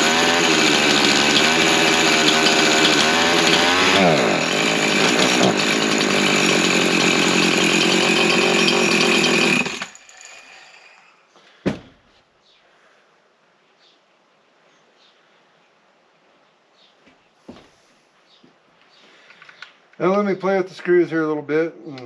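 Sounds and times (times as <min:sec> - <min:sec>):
chainsaw running: 0:00.0 - 0:11.2.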